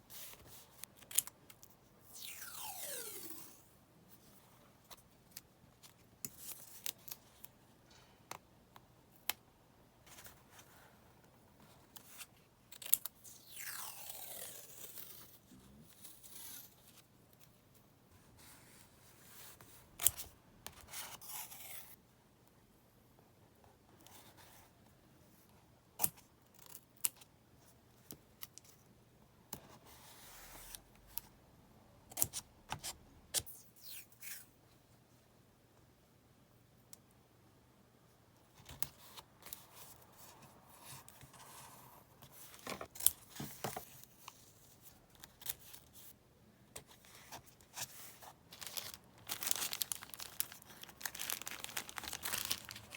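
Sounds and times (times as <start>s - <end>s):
paper rustling: 46.9s - 52.9s
tape peeling off backing: 48.6s - 52.9s.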